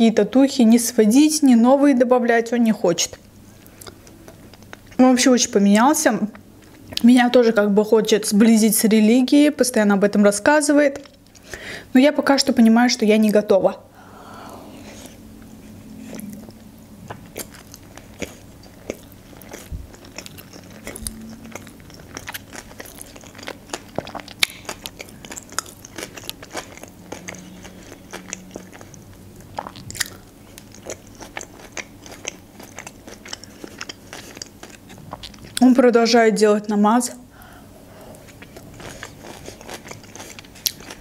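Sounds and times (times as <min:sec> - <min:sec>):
person chewing wetly: 0:03.6 - 0:05.0, 0:14.8 - 0:35.6, 0:38.1 - 0:41.0.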